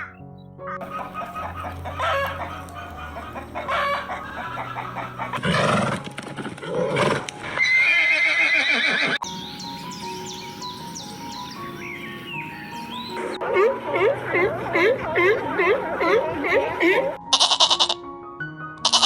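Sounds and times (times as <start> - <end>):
rooster crowing: 0.8 - 5.8
horse whinnying: 6.7 - 9.2.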